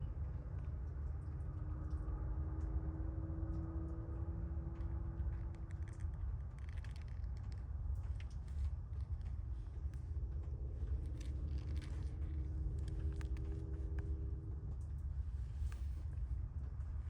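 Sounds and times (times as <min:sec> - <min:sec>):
faint hum: 0:00.0 - 0:17.0
low rumble: 0:03.6 - 0:17.0
kittens scratching and rustling: 0:04.9 - 0:17.0.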